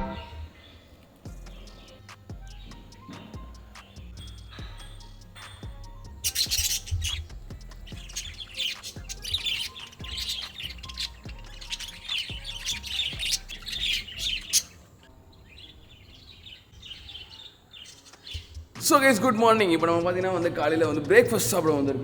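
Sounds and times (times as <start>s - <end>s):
birds chirping: 0.0s - 22.0s
music with bass beat: 1.3s - 14.3s.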